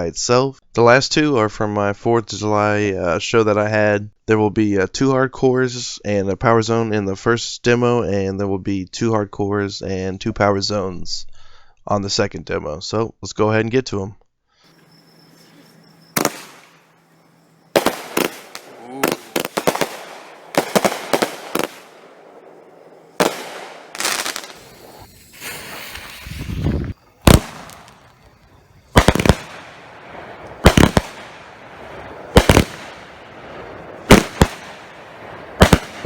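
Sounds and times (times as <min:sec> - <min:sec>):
firework cake firing: 0:14.7 - 0:36.0
sharp firework bangs: 0:14.7 - 0:36.0.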